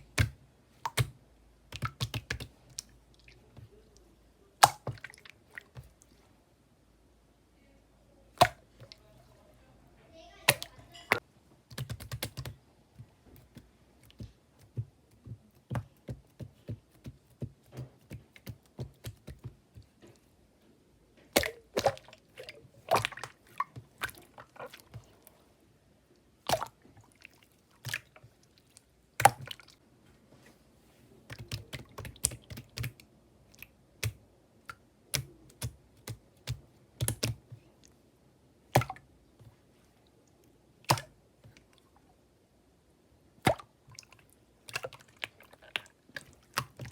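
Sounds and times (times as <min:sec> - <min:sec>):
slime clicking and popping: 0:00.0 - 0:02.9, 0:04.6 - 0:05.1, 0:35.1 - 0:37.4.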